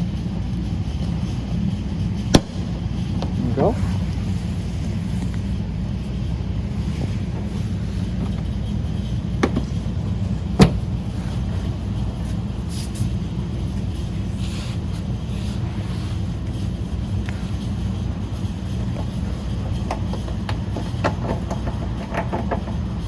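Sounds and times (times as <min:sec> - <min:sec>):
low rumble: 0:00.0 - 0:14.4.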